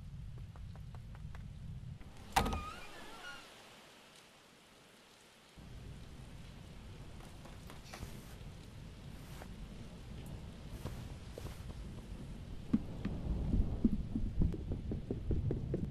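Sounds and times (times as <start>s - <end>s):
rain: 0.0s - 15.9s
door hinges creaking: 2.2s - 3.5s
low rumble of thunder: 5.6s - 15.9s.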